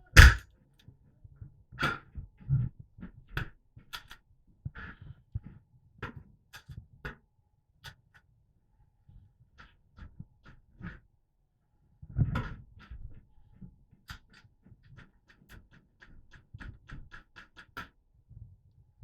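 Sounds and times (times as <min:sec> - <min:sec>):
airsoft gun clicks and cracks: 0:00.2 - 0:00.4.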